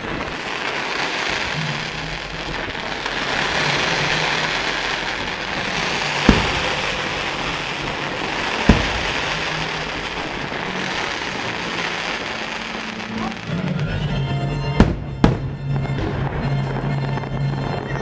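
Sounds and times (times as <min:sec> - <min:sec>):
fireworks crackling: 0:00.0 - 0:18.0
fireworks sharp bangs: 0:00.0 - 0:18.0.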